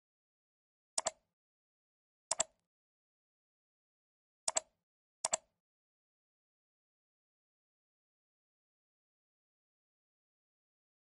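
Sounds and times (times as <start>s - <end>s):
computer mouse clicks: 1.0s - 1.2s, 2.3s - 2.6s, 4.5s - 5.5s.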